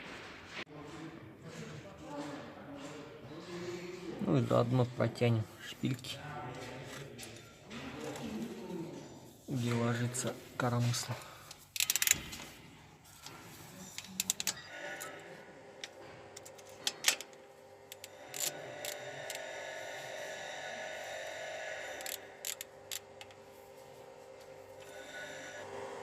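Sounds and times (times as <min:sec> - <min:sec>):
steady mechanical hum: 0:00.1 - 0:26.0
metallic clicks of hand tools: 0:11.8 - 0:12.2.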